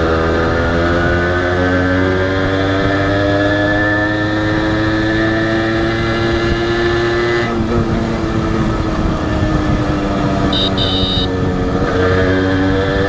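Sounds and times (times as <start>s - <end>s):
motorcycle engine running: 8.4s - 11.4s.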